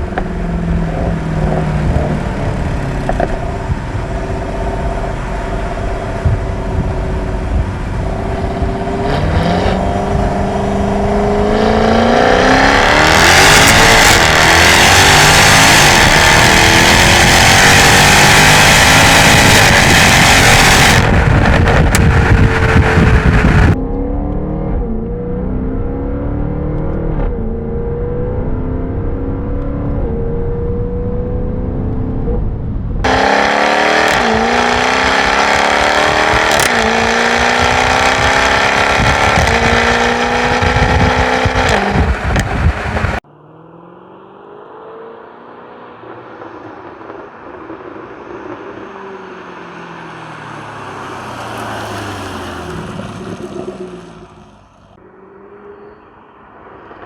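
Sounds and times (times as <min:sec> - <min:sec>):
car engine accelerating through gears: 0:00.0 - 0:48.1, 0:48.7 - 0:57.0.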